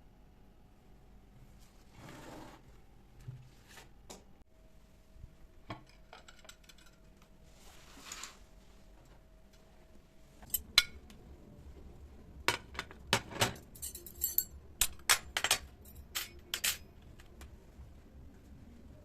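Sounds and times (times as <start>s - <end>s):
dishes and cutlery clinking: 12.5s - 17.0s.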